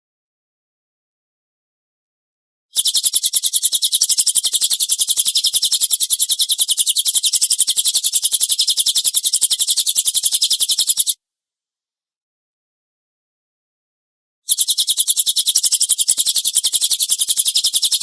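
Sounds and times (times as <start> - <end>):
rapid harsh bird call: 2.7 - 11.2, 14.5 - 18.0.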